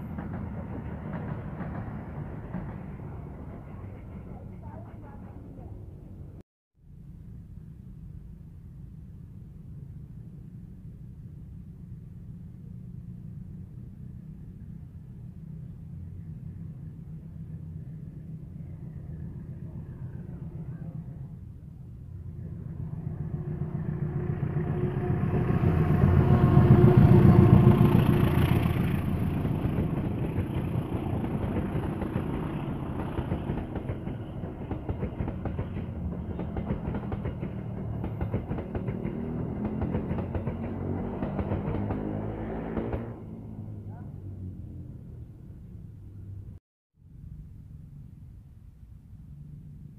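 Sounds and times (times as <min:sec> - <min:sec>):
train wheels clicking over rail joints: 0:00.0 - 0:04.4, 0:29.2 - 0:42.2
locomotive engine hum: 0:07.9 - 0:42.2.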